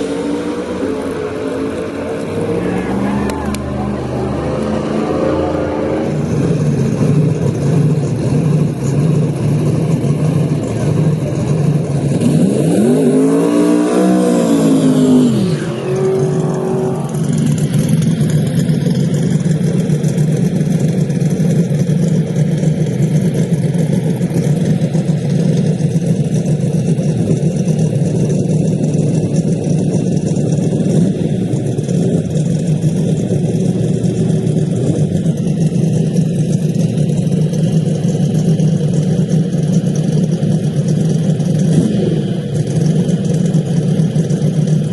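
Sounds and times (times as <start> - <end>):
engine revving: 0.0 - 20.5, 30.7 - 44.9
race car engines idling: 0.0 - 44.9.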